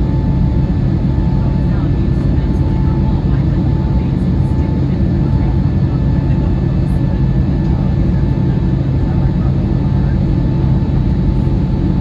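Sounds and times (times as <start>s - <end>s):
jet engine drone in cabin: 0.0s - 12.0s.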